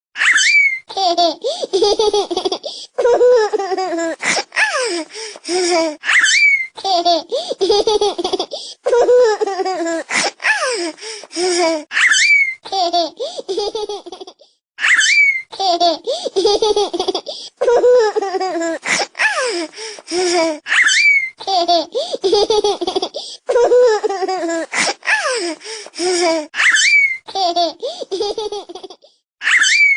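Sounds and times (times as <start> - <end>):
baby squealing: 0.2 - 1.0, 6.0 - 6.8, 11.9 - 13.0, 14.8 - 15.8, 20.7 - 21.8, 26.6 - 27.6, 29.4 - 29.9
baby laughing: 0.2 - 29.9.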